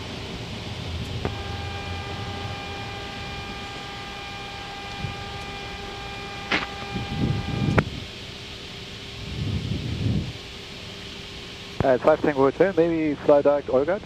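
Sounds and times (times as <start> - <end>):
steady electronic tone: 0.0 - 10.4
airflow and engine noise: 0.0 - 14.0
sharp click: 6.5 - 6.9.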